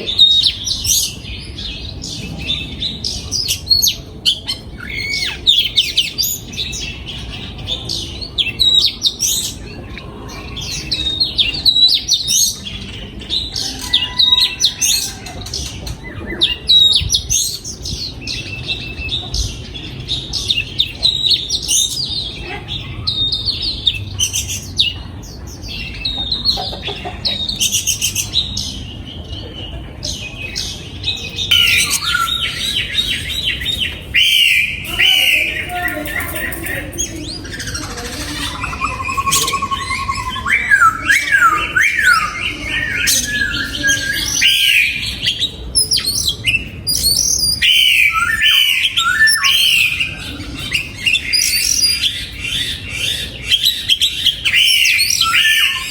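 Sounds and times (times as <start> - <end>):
bird singing whistled notes: 31.4 - 35.6, 38.4 - 50.1.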